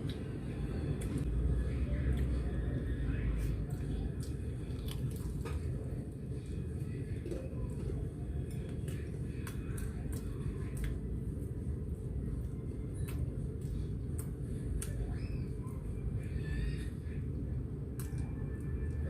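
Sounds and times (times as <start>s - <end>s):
low background hum: 0.0s - 19.0s
faint eating clicks and taps: 3.6s - 16.3s, 17.8s - 19.0s.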